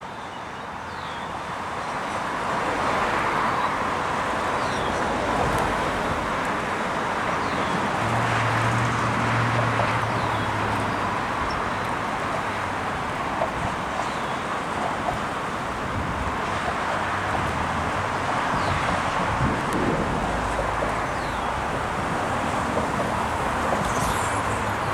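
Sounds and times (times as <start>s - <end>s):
train rumbling past: 2.5s - 24.9s
low engine hum: 16.0s - 24.9s.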